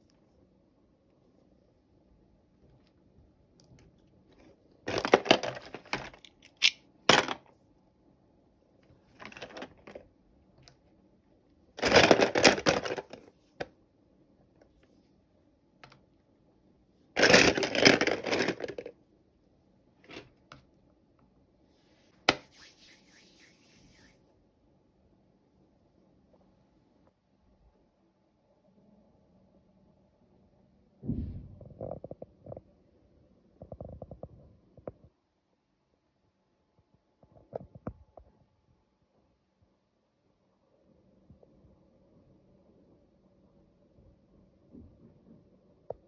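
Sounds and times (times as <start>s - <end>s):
packaging crinkling and tearing: 4.9s - 7.4s, 9.2s - 10.0s, 11.8s - 13.2s, 17.2s - 18.9s.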